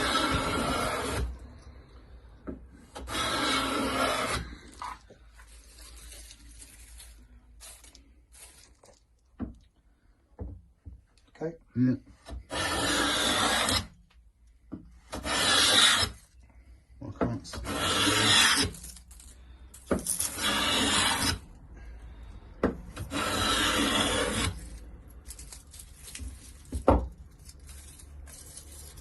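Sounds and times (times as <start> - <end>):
hand plane shaving wood: 0.0 - 1.3, 2.9 - 5.0, 12.4 - 13.9, 15.1 - 16.2, 17.5 - 18.7, 20.3 - 21.4, 23.0 - 24.7.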